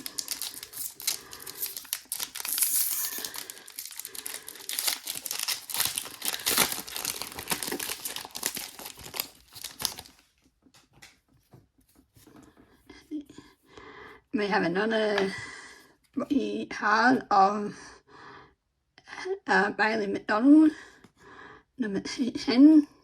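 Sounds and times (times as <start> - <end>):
foil wrapper crinkling: 0.0 - 10.3.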